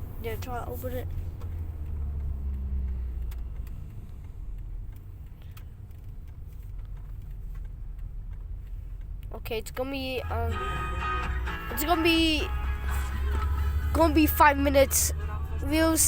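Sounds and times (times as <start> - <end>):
car engine rumble: 0.0 - 16.0
faint clicks: 1.1 - 9.4.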